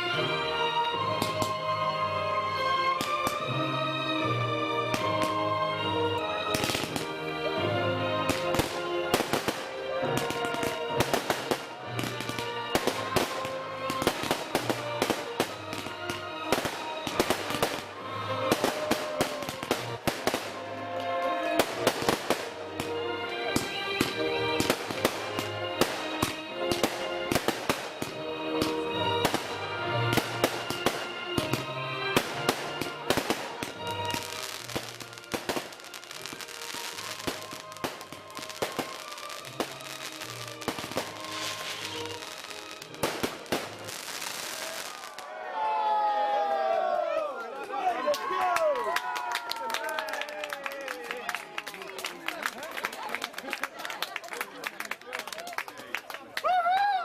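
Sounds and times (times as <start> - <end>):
music playing: 0.0 - 57.0
fireworks bangs and crackles: 1.0 - 1.6, 3.0 - 3.6, 6.5 - 7.2, 8.2 - 20.6, 21.5 - 45.2.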